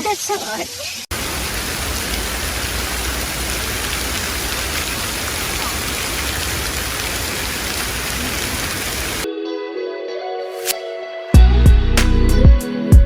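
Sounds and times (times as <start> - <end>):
hail and rain falling hard: 1.1 - 9.3.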